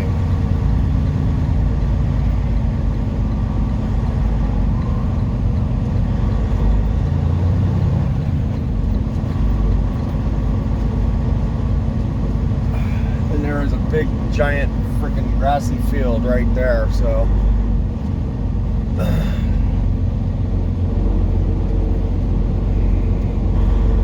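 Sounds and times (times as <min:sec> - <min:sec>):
diesel truck engine humming: 0:00.0 - 0:24.0.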